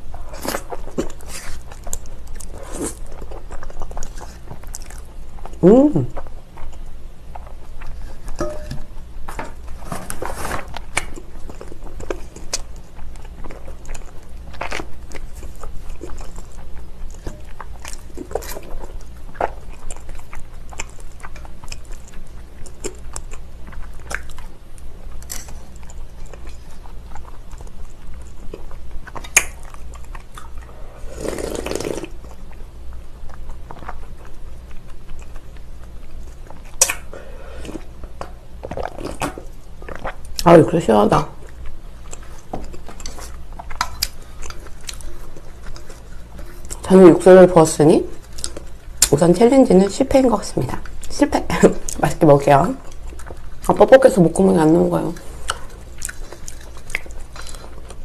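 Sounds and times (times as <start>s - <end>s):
chewing noodles: 9.5s - 40.6s, 50.0s - 58.0s.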